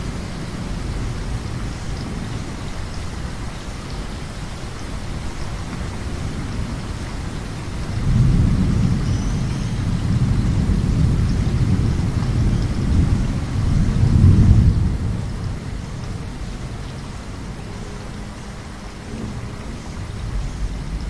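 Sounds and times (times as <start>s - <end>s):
heavy rain: 0.0s - 21.0s
thunder rumbling: 5.9s - 16.9s.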